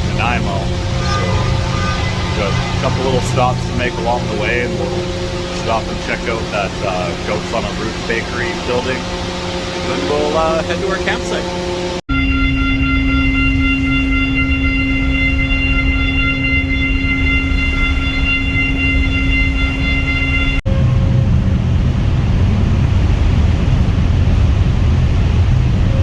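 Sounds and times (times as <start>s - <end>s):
multi-tone hum: 0.0s - 26.0s
vehicle rumble: 20.7s - 26.0s.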